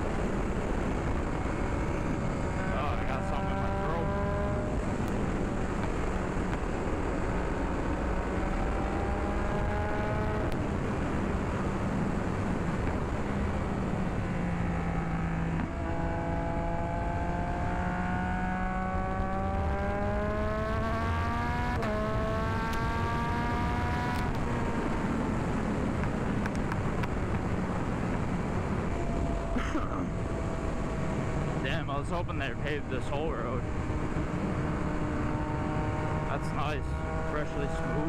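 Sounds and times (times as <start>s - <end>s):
heavy wind noise: 0.0s - 15.9s, 17.1s - 38.0s.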